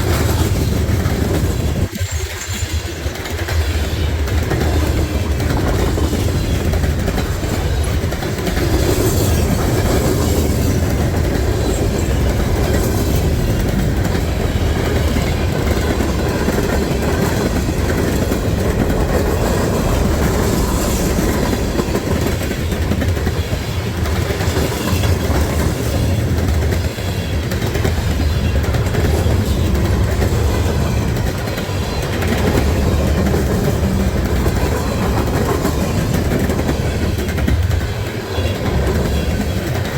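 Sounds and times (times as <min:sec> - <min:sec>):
train rumble: 0:00.0 - 0:39.9
wheels clacking over rail joints: 0:00.0 - 0:39.9.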